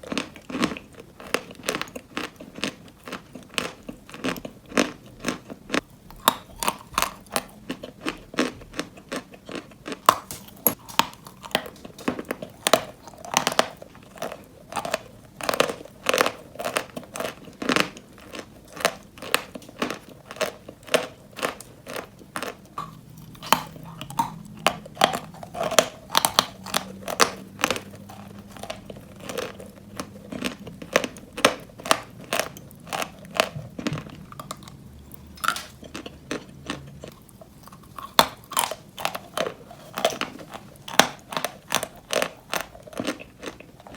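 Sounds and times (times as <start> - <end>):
chalk crunching between teeth: 19.4 - 33.2.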